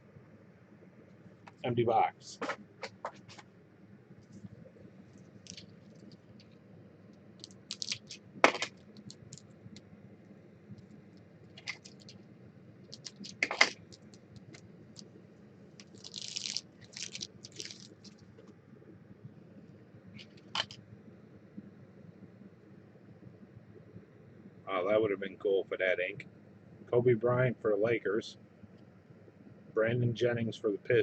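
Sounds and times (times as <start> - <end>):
wrapper crinkling: 5.3 - 6.5, 7.4 - 9.5, 11.5 - 12.2, 12.9 - 15.1, 15.8 - 18.2, 20.2 - 20.8.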